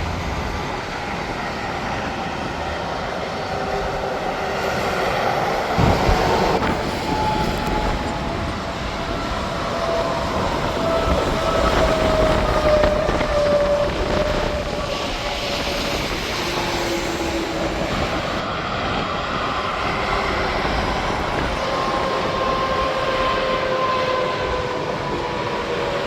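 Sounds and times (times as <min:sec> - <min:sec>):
highway traffic: 0:00.0 - 0:26.0
passing truck whine: 0:00.0 - 0:26.0.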